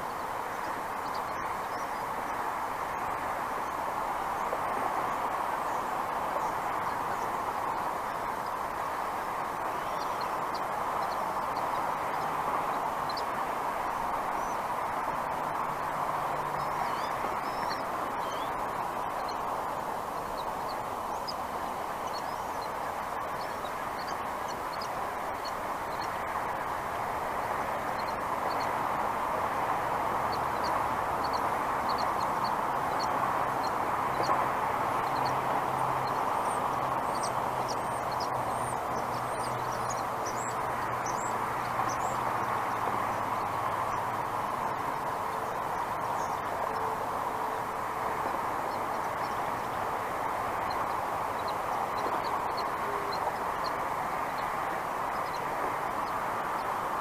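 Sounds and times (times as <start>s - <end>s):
faint high bird chirps: 16.6s - 19.4s.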